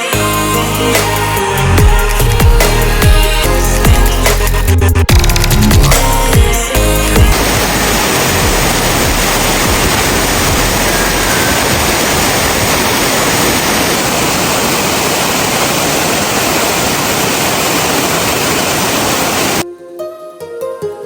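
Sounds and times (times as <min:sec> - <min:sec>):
waterfall rushing: 0:05.2 - 0:19.6.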